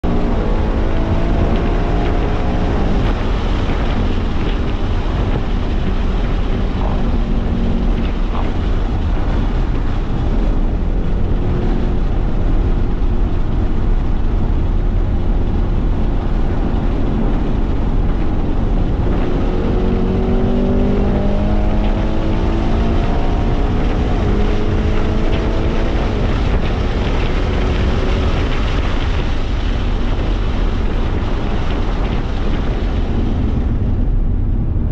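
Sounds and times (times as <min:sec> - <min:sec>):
car engine at high revs: 0:00.0 - 0:34.9
wind and road noise: 0:00.0 - 0:34.9.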